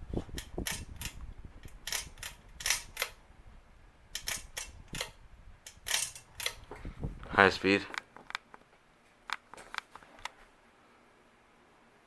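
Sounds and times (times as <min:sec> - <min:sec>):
ceiling fan running: 0:00.0 - 0:12.0.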